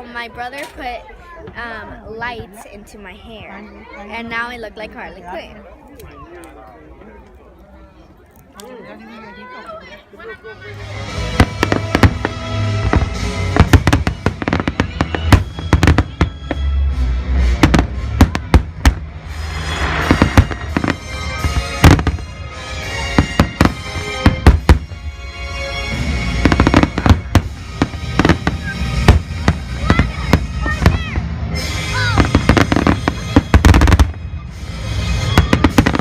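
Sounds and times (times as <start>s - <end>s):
music: 10.2s - 36.0s
fireworks crackling: 10.7s - 36.0s
fireworks bangs: 10.9s - 25.1s, 25.8s - 36.0s.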